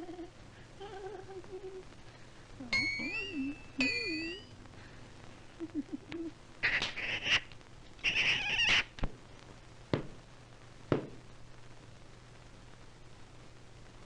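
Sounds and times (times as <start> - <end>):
old film soundtrack hiss: 0.0 - 14.0
cartoon cat yowling: 8.0 - 8.8.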